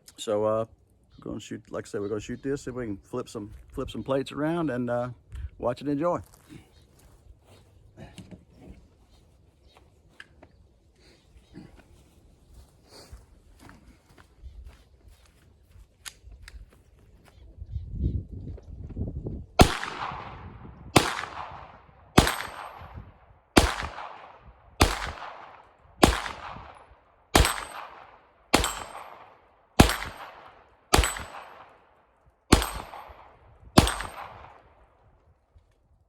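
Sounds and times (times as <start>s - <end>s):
pistol shots echoing: 19.6s - 31.9s, 32.5s - 34.8s
bullets ringing on steel plates: 22.2s - 22.9s, 27.4s - 28.0s, 28.6s - 31.6s, 32.5s - 33.2s, 33.8s - 34.4s.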